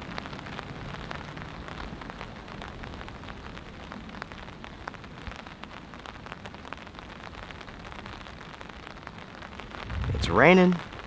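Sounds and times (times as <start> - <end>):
rain pattering on a tarp: 0.0 - 11.0
low wind rumble: 9.6 - 11.0.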